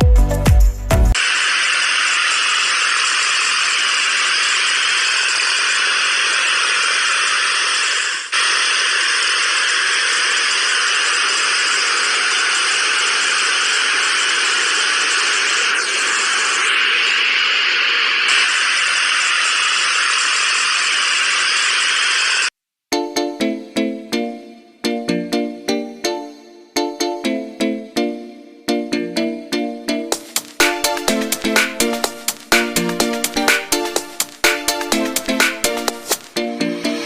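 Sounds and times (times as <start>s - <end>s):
steady hiss: 1.2s - 22.5s.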